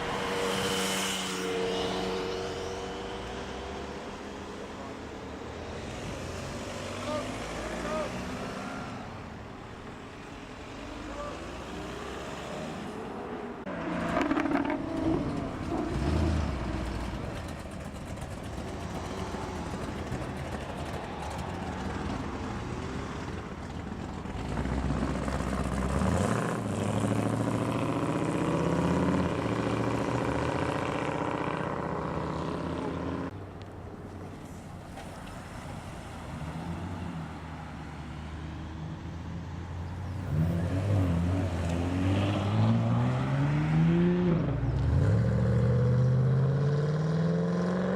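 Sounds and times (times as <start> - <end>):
cars accelerating away: 10.6 - 33.3, 40.0 - 47.9.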